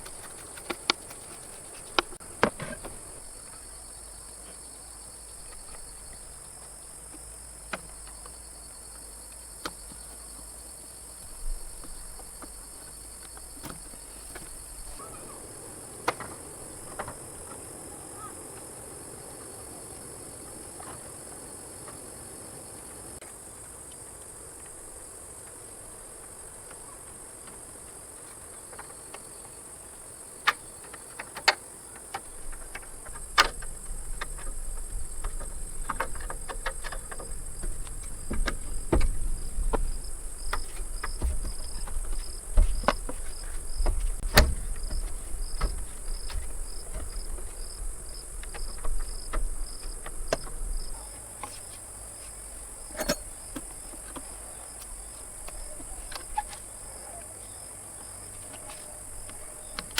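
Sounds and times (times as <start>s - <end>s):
crickets chirring: 0.0s - 59.9s
sharp knocks and clatter: 30.4s - 50.6s.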